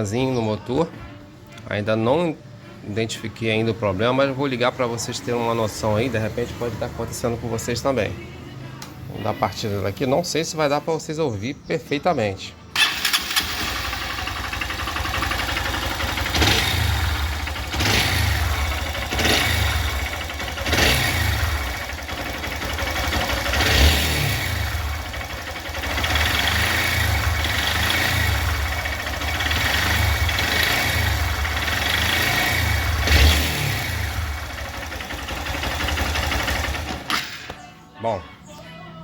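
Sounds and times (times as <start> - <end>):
motorcycle engine revving: 12.8 - 37.5
engine knocking: 12.9 - 33.3, 34.0 - 37.1.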